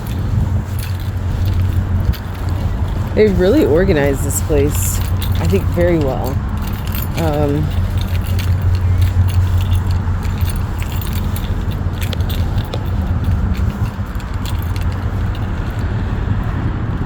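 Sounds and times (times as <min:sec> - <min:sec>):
metallic jingling clicks: 0:00.0 - 0:16.0
steady low rumble: 0:00.0 - 0:17.0.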